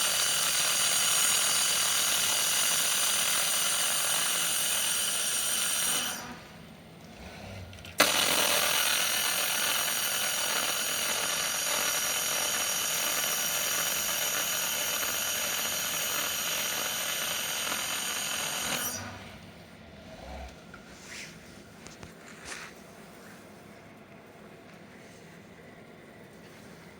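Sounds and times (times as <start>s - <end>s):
laser welder hissing: 0.0s - 6.4s, 8.0s - 19.4s.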